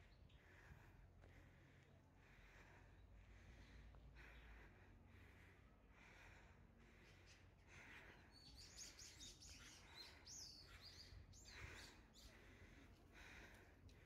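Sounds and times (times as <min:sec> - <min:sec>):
songbird chirping: 0:06.9 - 0:12.9.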